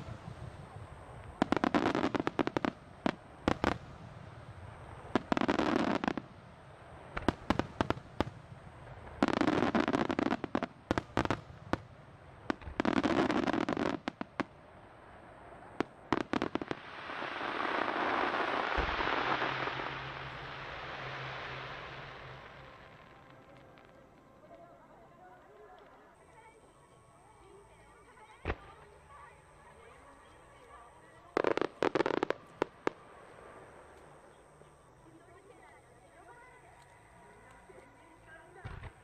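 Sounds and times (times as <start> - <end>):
fireworks bangs and pops: 0.0 - 4.2, 5.2 - 6.4, 7.1 - 14.5, 15.8 - 24.2
ground fountains hissing: 0.0 - 25.2.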